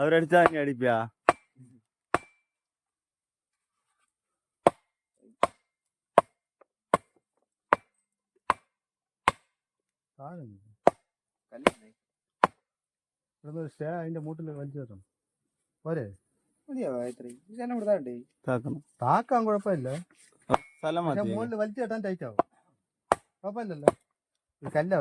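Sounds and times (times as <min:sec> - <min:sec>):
chopping blows on wood: 0:09.3 - 0:09.5, 0:23.1 - 0:24.0.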